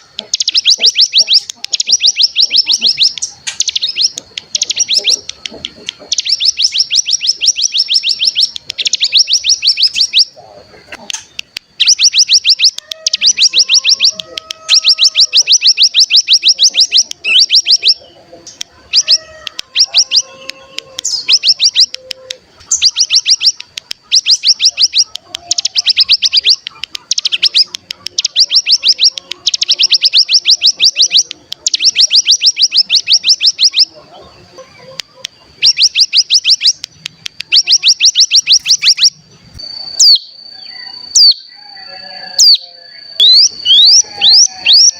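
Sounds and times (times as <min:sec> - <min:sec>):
bird rapid trills: 0:00.0 - 0:10.4, 0:11.1 - 0:34.0, 0:35.4 - 0:41.6, 0:42.2 - 0:44.9
thin steady high tone: 0:37.4 - 0:44.9.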